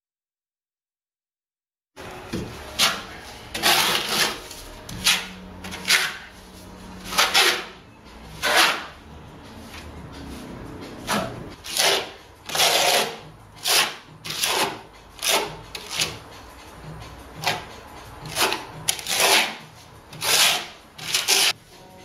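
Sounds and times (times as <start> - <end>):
trowel scraping wet cement: 2.7 - 6.4, 7.0 - 7.8, 8.4 - 9.0, 11.1 - 16.2, 18.3 - 21.6.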